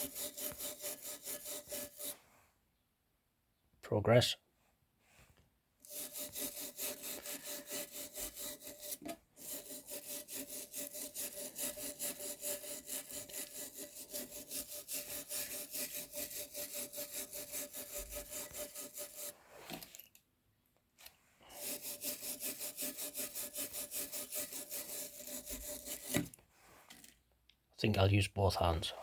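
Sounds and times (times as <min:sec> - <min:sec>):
wire brush scrubbing rust: 0:00.0 - 0:02.2, 0:05.8 - 0:20.0, 0:21.5 - 0:26.4.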